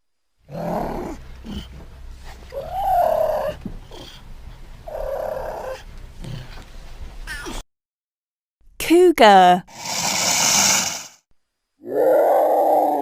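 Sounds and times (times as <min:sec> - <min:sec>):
cougar calling: 0:02.5 - 0:04.1.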